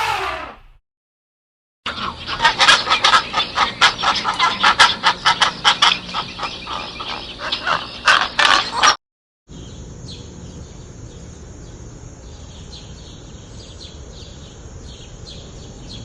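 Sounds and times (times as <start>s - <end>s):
chickens calling: 0.0s - 0.7s, 1.9s - 9.0s.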